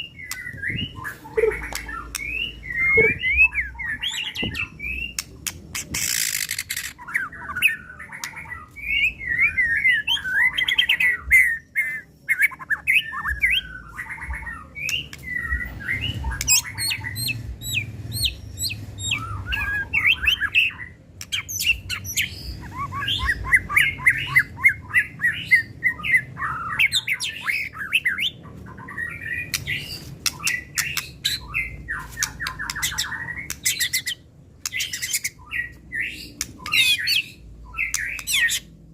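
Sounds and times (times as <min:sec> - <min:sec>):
bird singing whistled phrases: 0:00.0 - 0:05.2.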